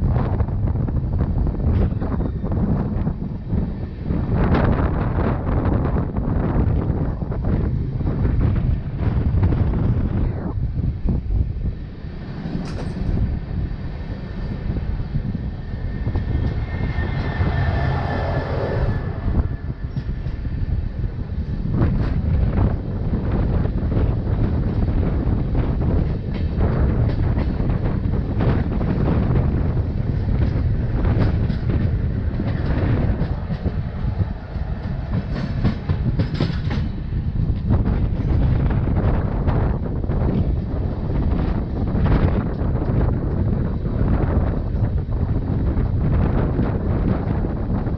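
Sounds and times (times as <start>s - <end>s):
passenger train rumble: 0.0s - 47.9s
wind buffeting microphone: 0.0s - 47.9s
wheels clicking over rail joints: 12.1s - 16.6s, 19.8s - 39.2s.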